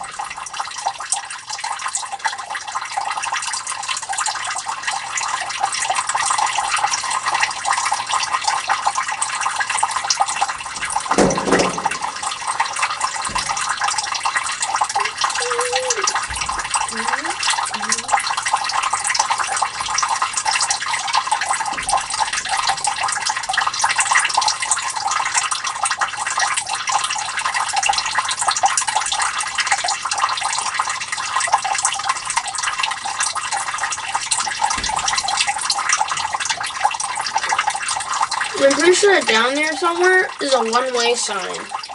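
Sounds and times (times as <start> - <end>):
water trickling and splashing: 0.0 - 41.9.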